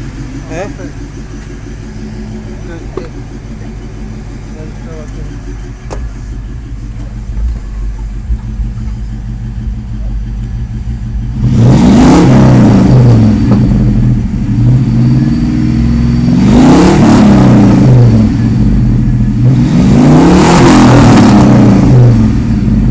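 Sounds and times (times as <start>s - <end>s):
car engine revving: 0.0s - 22.9s.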